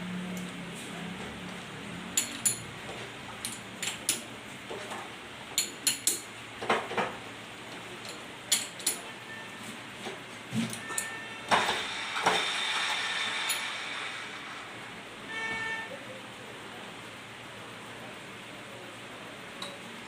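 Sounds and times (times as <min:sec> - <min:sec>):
metal tools clinking: 0:02.2 - 0:02.7, 0:08.0 - 0:09.1, 0:10.8 - 0:11.2.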